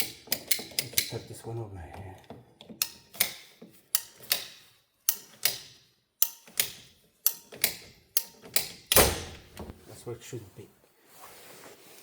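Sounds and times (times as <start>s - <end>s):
hand tool clicking: 2.7s - 9.6s.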